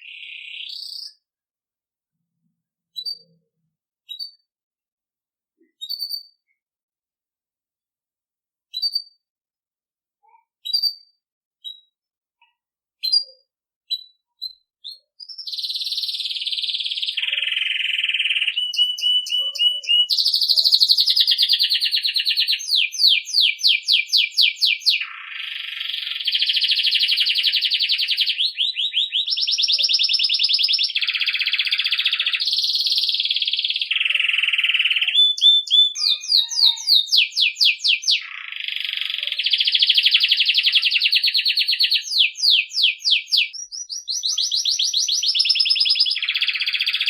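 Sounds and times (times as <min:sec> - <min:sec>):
canary singing trills: 0:13.0 - 0:47.0.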